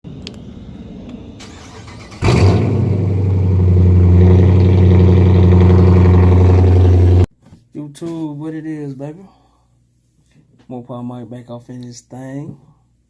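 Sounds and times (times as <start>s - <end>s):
car engine starting with bark: 1.4s - 7.3s
loud engine idling: 3.1s - 7.3s.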